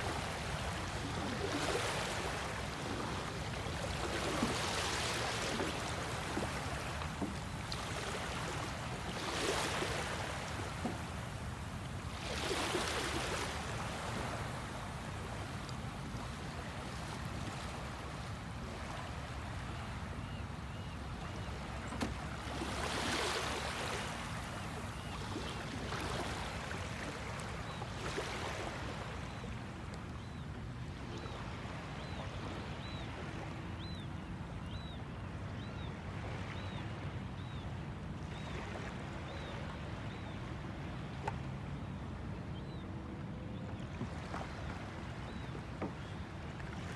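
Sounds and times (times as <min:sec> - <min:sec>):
water splashing around kayak: 0:00.4 - 0:20.8, 0:21.4 - 0:29.0.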